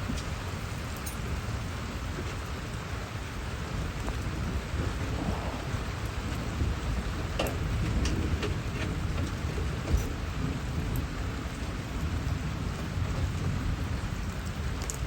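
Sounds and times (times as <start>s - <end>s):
steady rain falling: 0.0s - 15.0s
low rumble: 4.3s - 9.4s.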